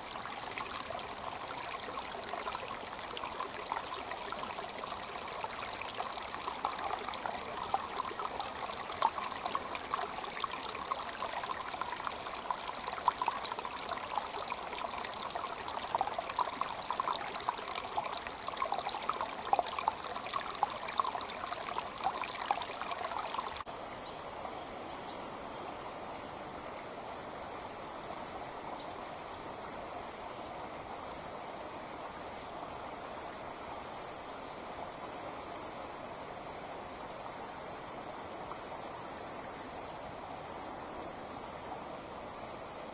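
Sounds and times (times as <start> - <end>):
creek water splashing over stones: 0.0 - 23.7.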